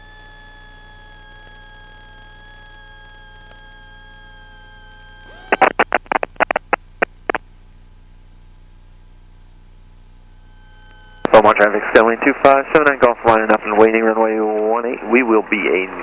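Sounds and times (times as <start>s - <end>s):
cabin intercom hum and whine: 0.0s - 16.0s
radio static bursts: 5.1s - 7.4s, 10.5s - 16.0s.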